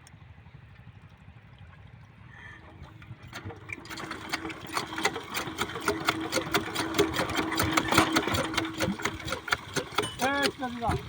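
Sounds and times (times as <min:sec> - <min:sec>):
engine water pump rumble: 0:00.0 - 0:11.0
water sounds: 0:00.7 - 0:11.0
engine knocking: 0:02.6 - 0:11.0.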